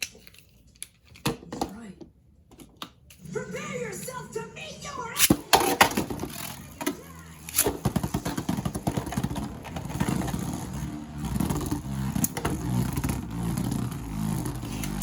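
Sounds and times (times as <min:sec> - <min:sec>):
spinning tops whirring: 0:03.2 - 0:15.0.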